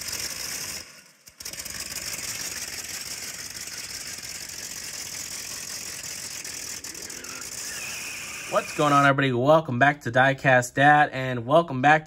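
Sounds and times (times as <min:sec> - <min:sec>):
hot rod engine running: 0:00.0 - 0:09.2.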